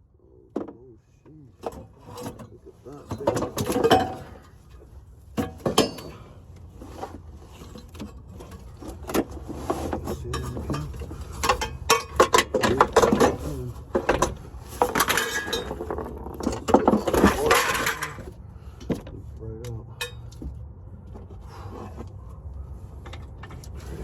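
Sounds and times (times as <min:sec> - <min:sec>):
metal tools clinking on metal: 0:01.6 - 0:04.8, 0:05.4 - 0:06.4, 0:09.8 - 0:18.4, 0:19.6 - 0:20.4.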